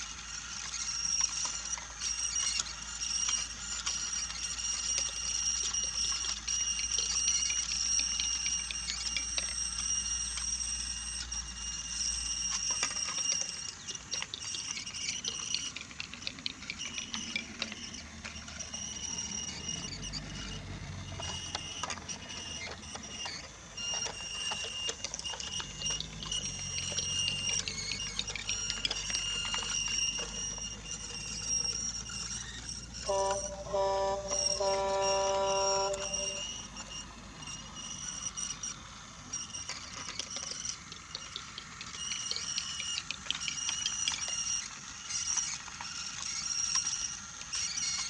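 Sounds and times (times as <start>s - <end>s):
toy train motor whining: 0.0s - 48.0s
wheels clicking over track joints: 12.5s - 36.6s.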